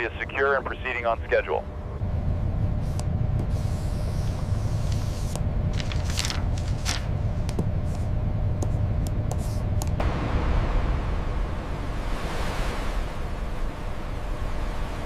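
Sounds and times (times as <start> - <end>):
boat engine rumble: 0.0 - 15.0
faint hum: 0.0 - 15.0.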